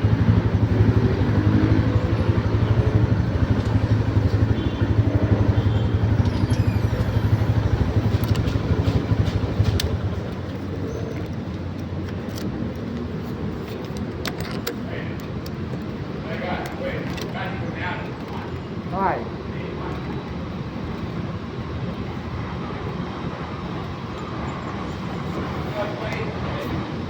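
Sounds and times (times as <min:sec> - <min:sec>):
engine running: 0:00.0 - 0:14.7.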